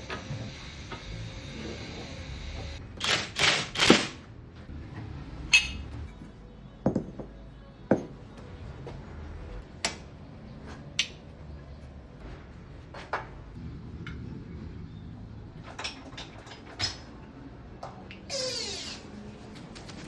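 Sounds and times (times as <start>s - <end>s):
metal tools knocking on wheel hub: 5.5s - 6.2s.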